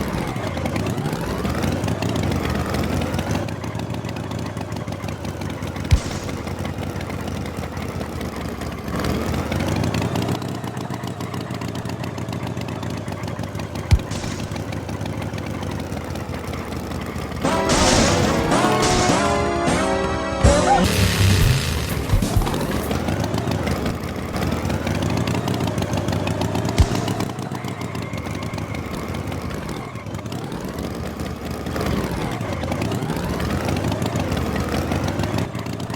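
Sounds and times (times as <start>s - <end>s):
tractor engine running: 0.0s - 35.9s
sharp pop: 5.9s - 7.1s, 13.9s - 14.8s, 26.8s - 27.3s.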